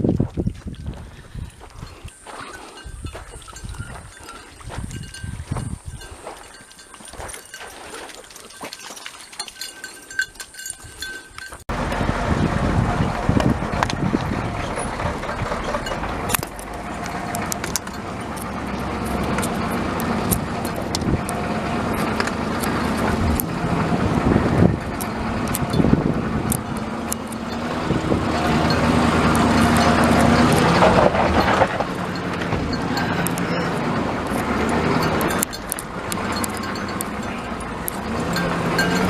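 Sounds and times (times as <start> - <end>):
rattles and knocks from bumps: 11.4 - 39.0
vehicle engine running: 11.7 - 39.0.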